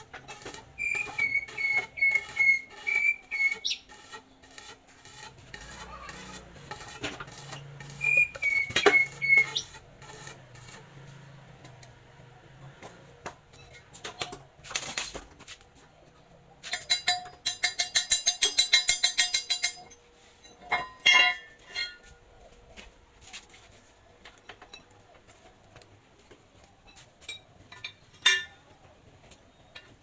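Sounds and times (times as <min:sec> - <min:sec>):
metal tools clinking: 0:16.6 - 0:22.2, 0:26.8 - 0:28.9
rapid ringing metallic clicks: 0:16.7 - 0:20.0.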